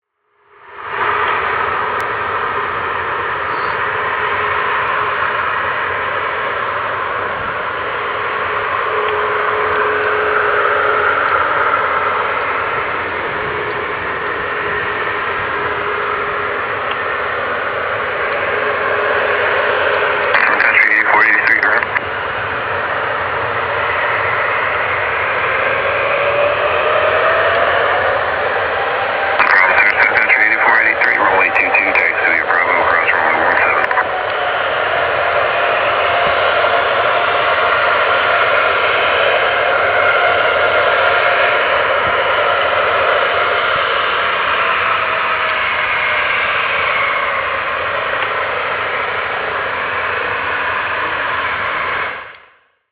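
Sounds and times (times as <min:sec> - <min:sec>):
helicopter turbine and rotor noise: 0:00.5 - 0:52.3
radio static hiss: 0:20.3 - 0:22.0, 0:29.4 - 0:34.3.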